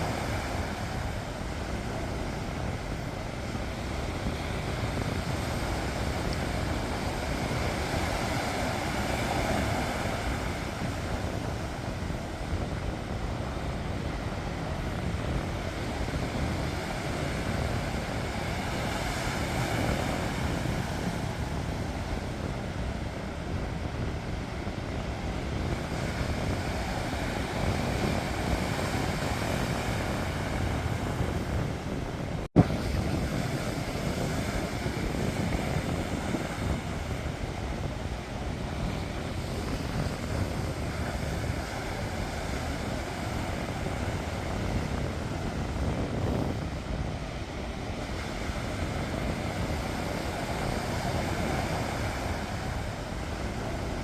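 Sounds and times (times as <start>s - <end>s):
sea waves washing ashore: 0.0s - 54.0s
wind rumble on microphone: 0.0s - 54.0s.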